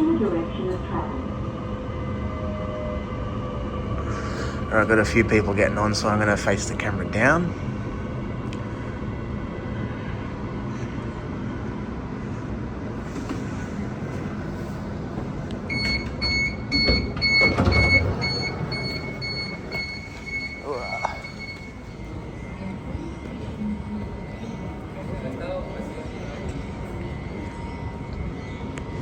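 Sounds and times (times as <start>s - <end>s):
electric train humming: 0.0s - 29.0s
train doors knocking and rumbling: 15.0s - 25.2s
rapid high warning beeps: 15.7s - 22.1s.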